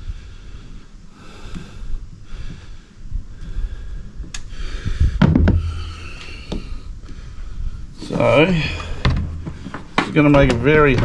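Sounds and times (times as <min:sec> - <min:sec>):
man breathing heavily: 0:00.0 - 0:10.3
knock: 0:05.2 - 0:05.7.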